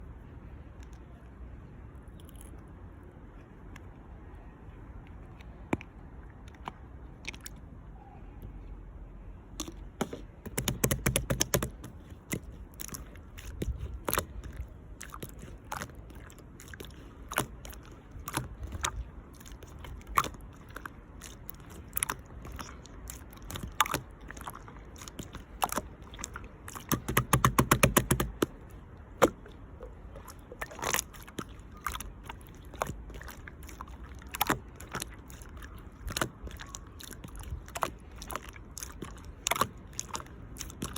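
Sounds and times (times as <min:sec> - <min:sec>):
sticky wet slime clicks: 0:09.6 - 0:29.6.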